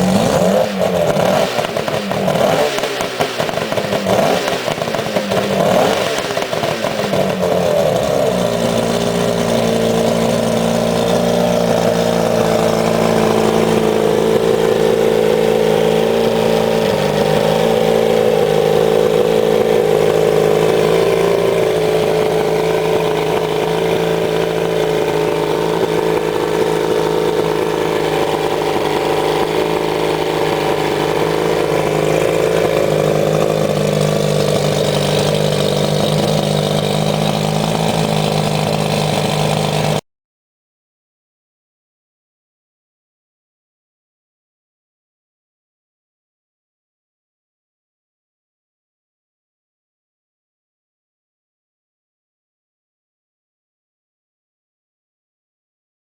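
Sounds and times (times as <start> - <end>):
outboard engine revving: 0.0 - 40.0.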